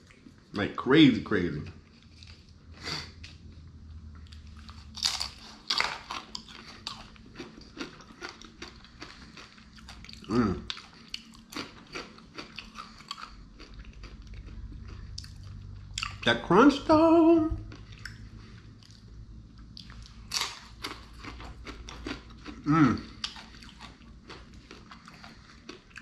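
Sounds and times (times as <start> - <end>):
chewing crunchy food: 4.2 - 16.3, 17.6 - 26.0
person humming: 22.7 - 23.0.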